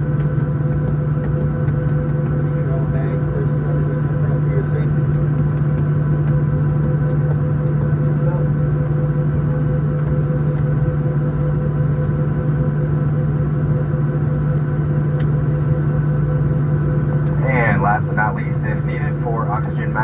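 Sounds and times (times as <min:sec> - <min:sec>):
aircraft cabin hum: 0:00.0 - 0:20.0
faint steady whine: 0:07.9 - 0:20.0.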